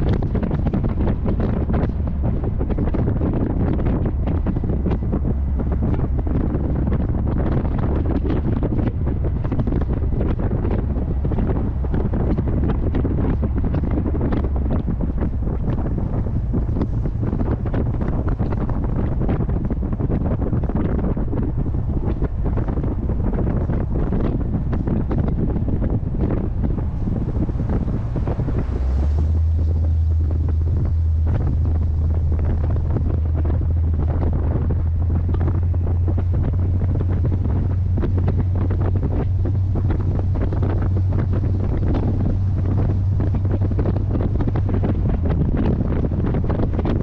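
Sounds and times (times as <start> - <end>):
car engine cruising drone: 0.0 - 47.0
wind buffeting on microphone: 0.0 - 47.0.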